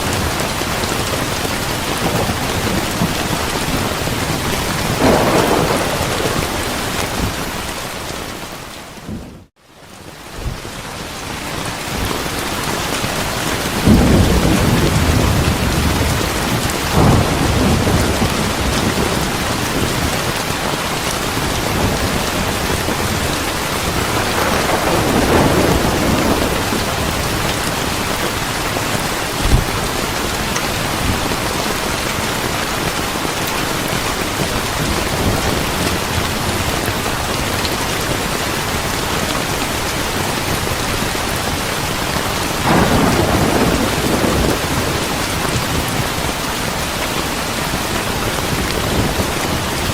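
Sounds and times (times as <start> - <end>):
rolling thunder: 0.0 - 8.0, 13.6 - 32.1, 42.4 - 46.4
heavy rain: 0.0 - 49.9
sharp thunder crack: 4.0 - 7.6, 13.8 - 20.1, 23.8 - 27.5, 42.6 - 45.8.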